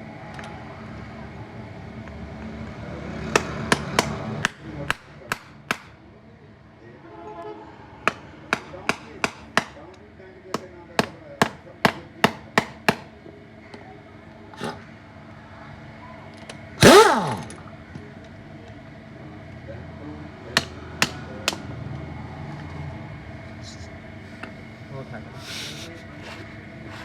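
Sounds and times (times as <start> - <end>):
hammer strikes: 3.4 - 6.0, 8.1 - 9.8, 11.0 - 13.1.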